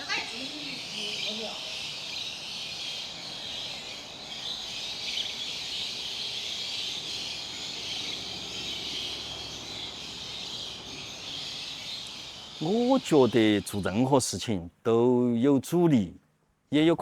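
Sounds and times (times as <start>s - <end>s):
high-pitched insect chorus: 0.0s - 14.4s.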